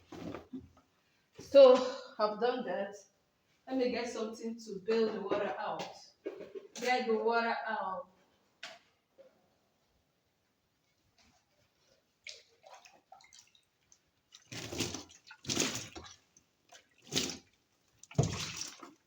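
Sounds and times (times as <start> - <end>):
water dripping and trickling: 11.8 - 19.0
water sloshing splashes: 11.8 - 19.0.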